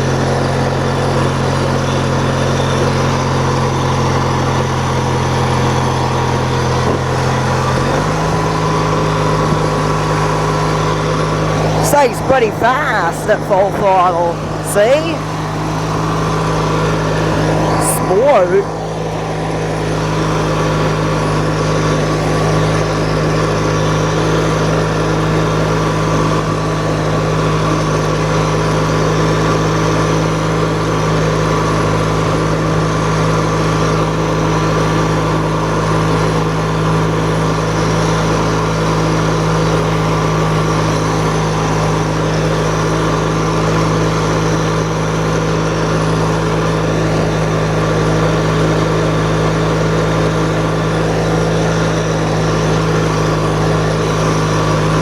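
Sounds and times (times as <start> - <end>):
lawn tractor engine running: 0.0 - 55.0.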